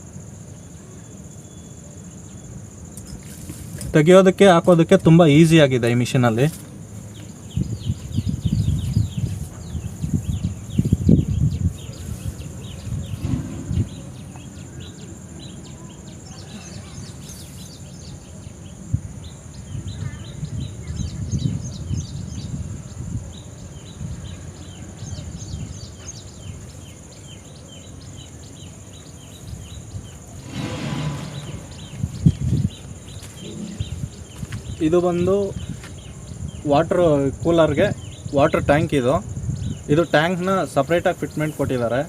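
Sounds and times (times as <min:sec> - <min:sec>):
high insect whine: 0:00.0 - 0:42.0
low rumbling on microphone: 0:07.1 - 0:17.4, 0:29.6 - 0:39.9
bird chirps: 0:07.1 - 0:22.6, 0:23.4 - 0:36.8.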